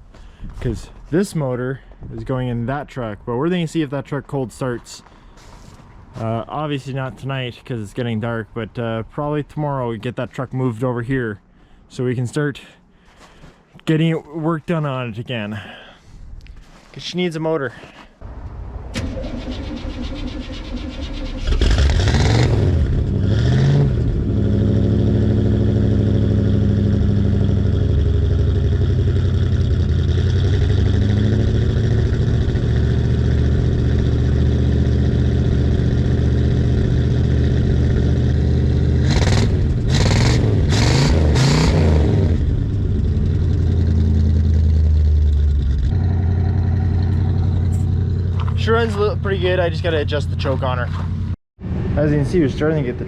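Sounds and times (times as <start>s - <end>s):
truck engine starting and revving: 18.2s - 53.0s.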